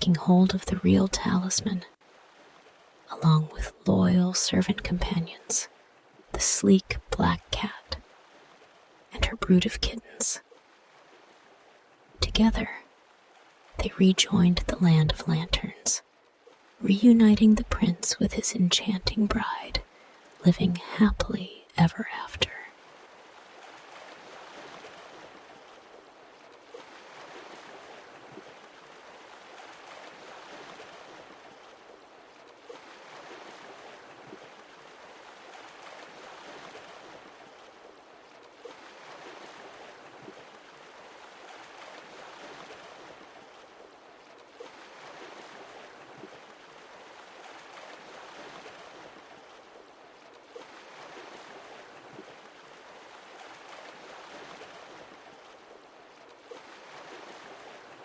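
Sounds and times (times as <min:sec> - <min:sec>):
sea waves washing ashore: 0:22.6 - 0:49.9, 0:50.5 - 0:58.0.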